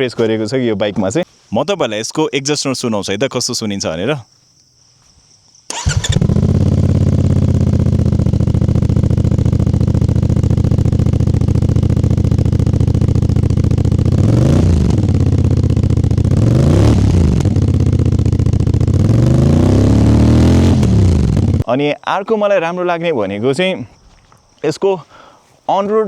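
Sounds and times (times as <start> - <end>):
motorcycle engine idling and revving: 5.7 - 21.7.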